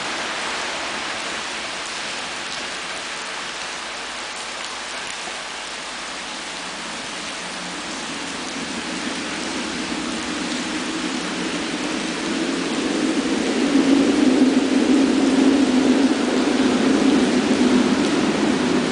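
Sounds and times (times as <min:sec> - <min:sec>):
rain hissing: 0:00.0 - 0:18.9
train rumble: 0:06.2 - 0:18.9.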